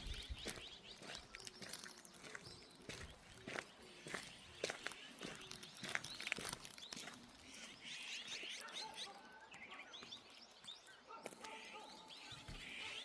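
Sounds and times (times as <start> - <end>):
footsteps on path: 0.0 - 9.1
songbirds chirping: 0.0 - 13.0.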